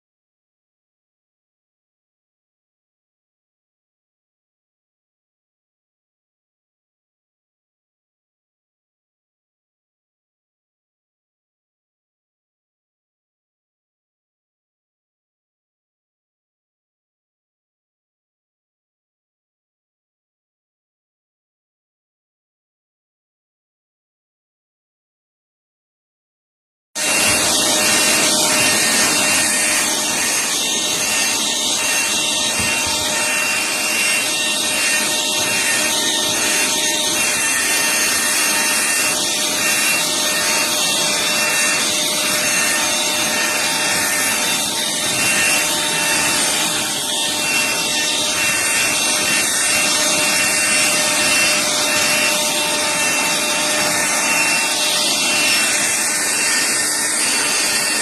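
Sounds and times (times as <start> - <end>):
handheld vacuum running: 27.0 - 58.0.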